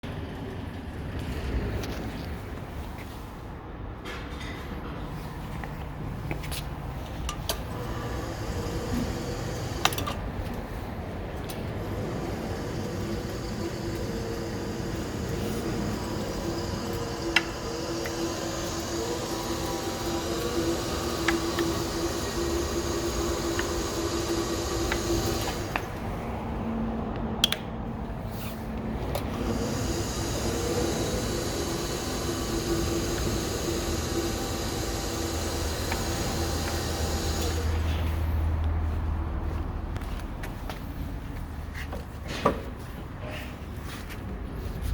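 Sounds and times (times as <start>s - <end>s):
electric motor and gear hum: 6.1s - 40.8s.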